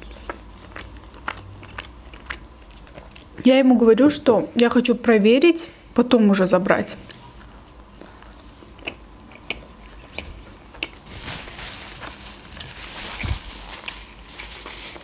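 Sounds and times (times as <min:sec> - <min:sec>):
chewing soft food: 0:00.0 - 0:03.4, 0:07.0 - 0:15.0
wet mouth clicks: 0:08.0 - 0:11.0
paper napkin rustling: 0:11.0 - 0:15.0.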